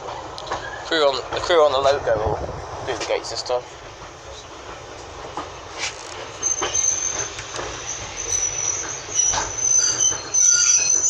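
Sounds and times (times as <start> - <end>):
train clanks: 0.0 - 11.0
train running rumble: 0.0 - 11.0
train wheels squealing: 0.1 - 1.6, 5.6 - 11.0.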